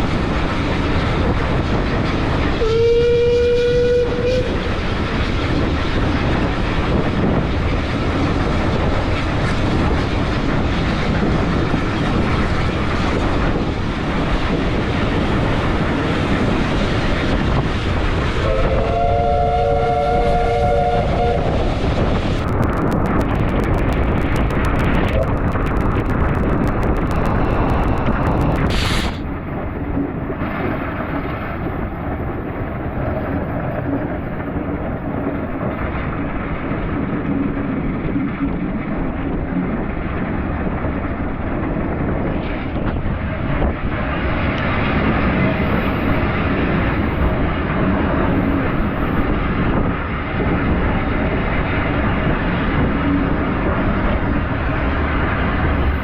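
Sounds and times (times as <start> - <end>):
train wheels clattering on track: 0.0 - 56.0
steam whistle: 2.6 - 4.6, 18.4 - 21.7.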